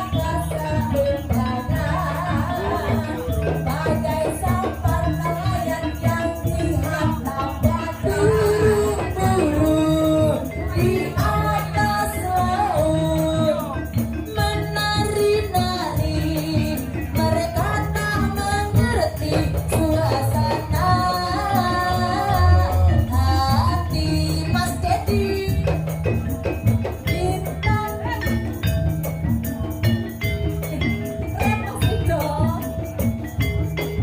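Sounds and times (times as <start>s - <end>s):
person singing: 0.0s - 25.8s
band rhythm with percussion: 0.0s - 34.0s.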